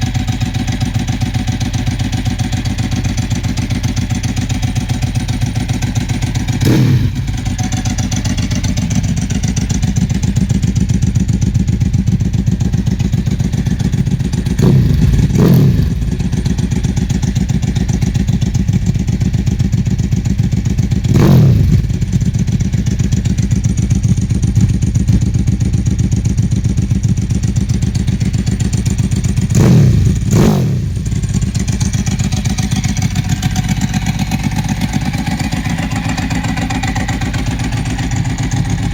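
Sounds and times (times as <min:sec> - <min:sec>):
motorcycle engine idling: 0:00.0 - 0:38.9
engine revving: 0:06.6 - 0:07.5, 0:14.6 - 0:16.6, 0:21.1 - 0:22.1, 0:29.5 - 0:31.3.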